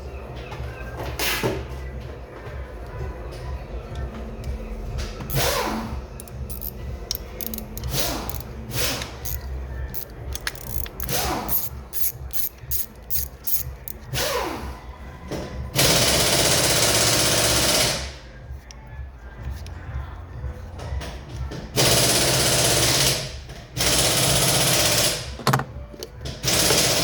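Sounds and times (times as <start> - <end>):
sharp clicks of hand tool: 6.2 - 14.0.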